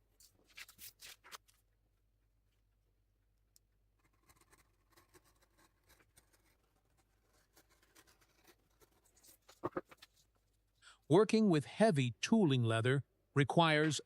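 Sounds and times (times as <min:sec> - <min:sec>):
faint small clicks and scratches: 0:03.5 - 0:10.5.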